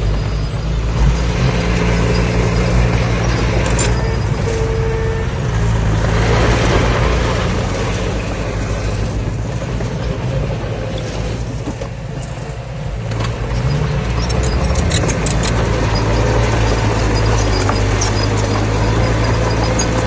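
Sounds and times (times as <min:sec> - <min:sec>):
heavy diesel engine under load: 0:00.0 - 0:20.0
metallic ticks and clanks: 0:01.9 - 0:04.5, 0:11.0 - 0:20.0.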